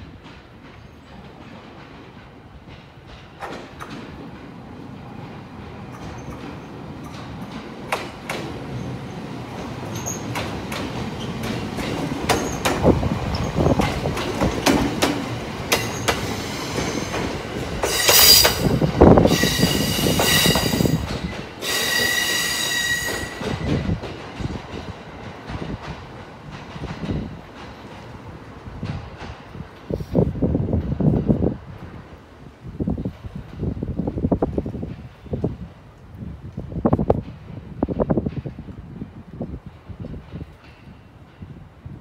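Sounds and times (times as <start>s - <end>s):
train wheels clacking over joints: 9.6s - 29.9s
wheels squealing high ringing: 19.3s - 21.0s, 21.6s - 23.4s.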